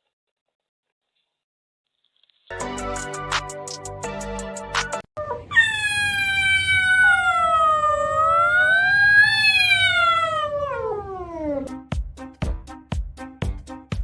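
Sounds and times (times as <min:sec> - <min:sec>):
cat yowling: 0:05.2 - 0:11.7.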